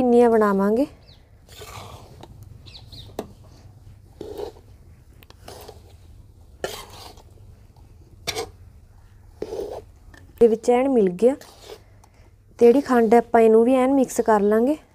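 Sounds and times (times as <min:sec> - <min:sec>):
metal spatula scraping a pan: 0:01.5 - 0:02.3, 0:03.1 - 0:04.7, 0:05.4 - 0:07.4, 0:08.2 - 0:08.6, 0:09.4 - 0:11.9.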